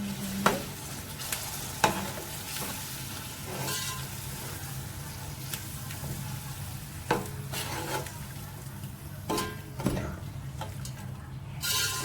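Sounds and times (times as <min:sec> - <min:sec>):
spices sizzling in a pot: 0:00.0 - 0:12.0
spoon scraping a pot: 0:03.4 - 0:04.2, 0:07.1 - 0:08.1, 0:11.6 - 0:12.0.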